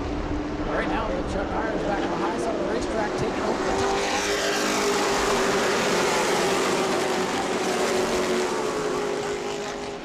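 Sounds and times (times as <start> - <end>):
race trucks engines racing: 0.0 - 10.0.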